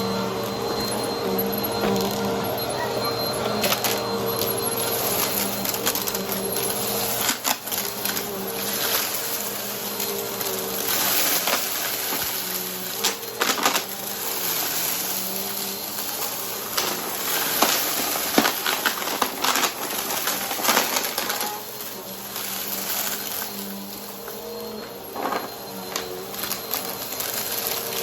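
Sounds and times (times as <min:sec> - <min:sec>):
vacuum cleaner running: 0:00.0 - 0:28.0
debris clicking in vacuum: 0:05.0 - 0:24.4.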